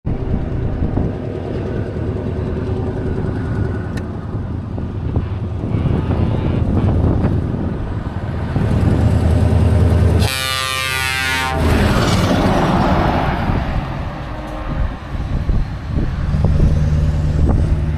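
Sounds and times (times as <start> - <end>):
diesel truck engine rumble: 0.1 - 17.9
truck horn blast: 5.0 - 7.3, 10.2 - 11.7.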